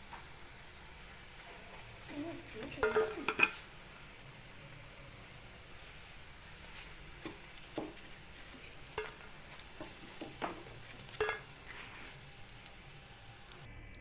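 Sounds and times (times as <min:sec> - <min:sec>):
fritters sizzling in hot oil: 0:00.0 - 0:14.0
utensil scraping and clinking on pan: 0:02.7 - 0:03.7, 0:07.2 - 0:12.3.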